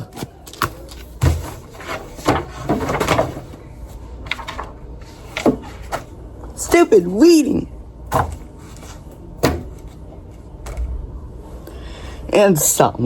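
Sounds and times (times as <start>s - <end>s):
rustling handling noises: 0.0s - 7.0s.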